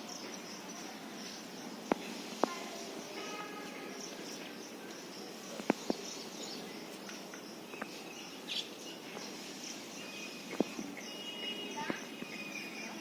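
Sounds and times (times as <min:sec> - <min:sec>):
insects chirping: 0:00.0 - 0:13.0
bird chirps: 0:03.1 - 0:13.0.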